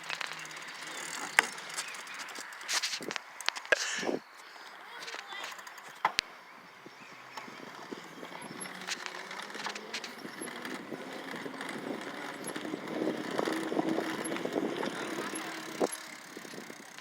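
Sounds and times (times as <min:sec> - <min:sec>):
bicycle tyres and rattle: 0:00.0 - 0:17.0
sharp clicks: 0:08.2 - 0:12.7.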